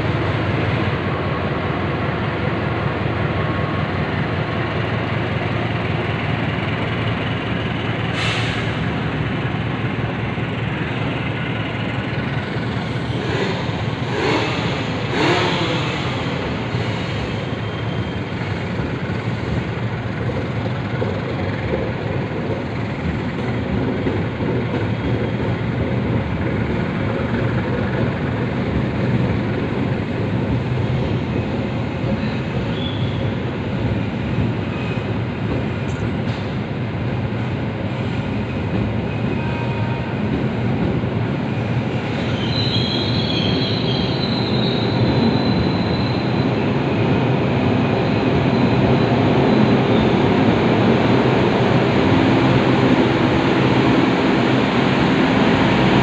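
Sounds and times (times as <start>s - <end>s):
train wheels rumbling on rails: 0.0s - 56.0s
train wheels squealing: 10.8s - 21.5s, 26.7s - 36.7s, 38.0s - 40.8s, 41.4s - 51.1s.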